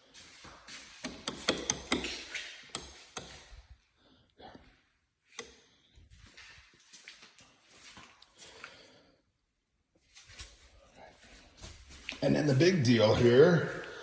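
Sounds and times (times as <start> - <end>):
sharp knocks and taps: 1.0 - 2.1, 2.7 - 3.5.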